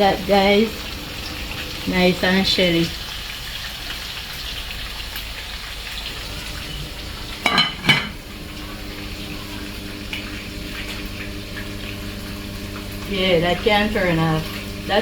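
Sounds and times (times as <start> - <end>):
chicken sizzling in hot oil: 0.0 - 15.0
metal cookware clanks: 7.4 - 8.2.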